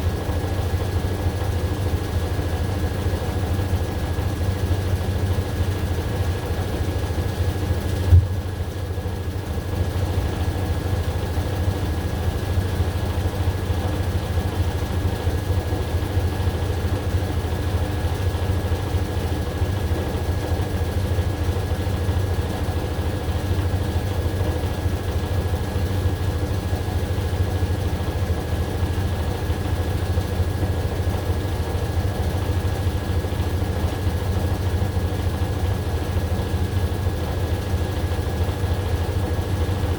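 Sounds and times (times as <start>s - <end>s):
washing machine running: 0.0s - 39.9s
short knock: 8.1s - 8.5s.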